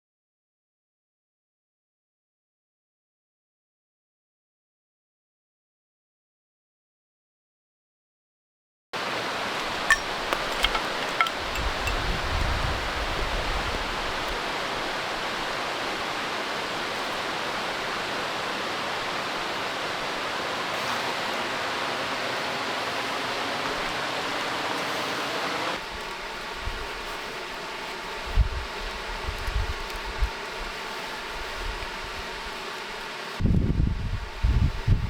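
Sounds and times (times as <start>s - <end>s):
waterfall rushing: 9.0s - 12.2s, 13.7s - 25.8s
steady hum: 9.1s - 35.0s.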